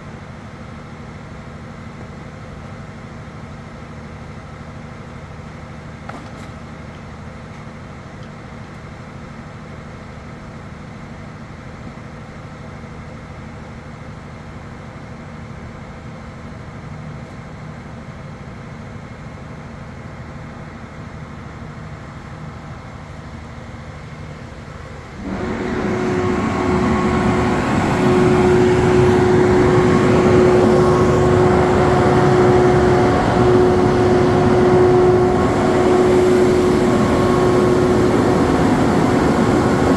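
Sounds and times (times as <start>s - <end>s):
low machine hum: 24.9s - 39.9s
machine rushing with whine: 25.0s - 39.9s.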